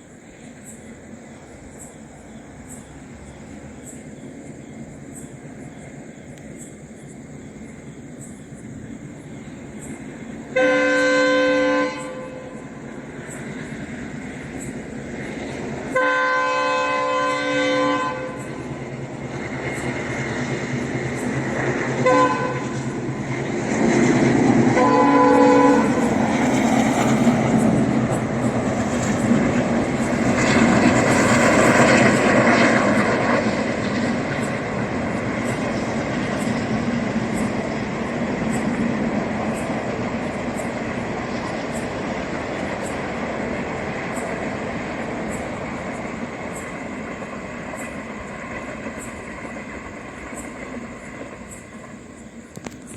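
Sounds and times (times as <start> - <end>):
train horn blasts: 10.5 - 12.8, 15.9 - 18.6, 22.0 - 22.9, 24.7 - 26.2
train wheels clattering on rails: 11.9 - 52.9.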